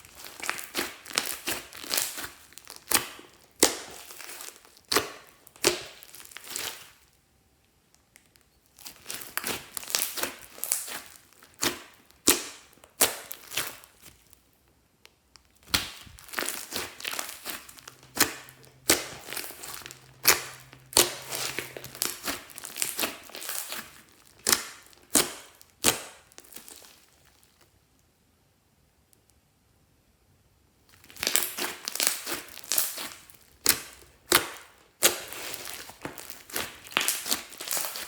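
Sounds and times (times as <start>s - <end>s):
slime squishing: 0.0s - 7.2s, 8.1s - 14.5s, 15.4s - 27.7s, 30.9s - 38.0s
air pockets popping in slime: 15.6s - 27.0s, 31.0s - 38.0s.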